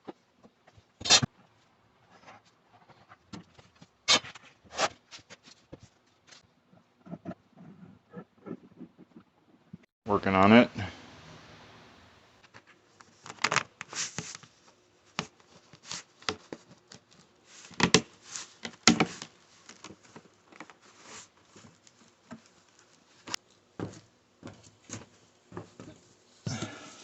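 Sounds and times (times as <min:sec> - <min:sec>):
plastic sheeting taps and rustles: 0:12.4 - 0:26.1.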